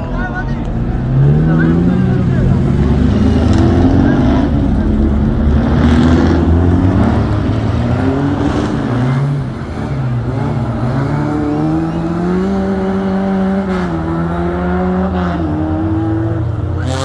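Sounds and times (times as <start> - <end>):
racing car engine revving: 0.0 - 17.0.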